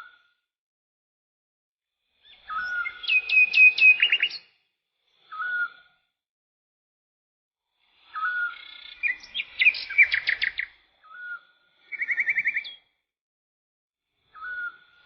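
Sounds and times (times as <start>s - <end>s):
songbird singing whistles and trills: 2.2s - 6.0s, 8.0s - 13.0s, 14.2s - 15.0s.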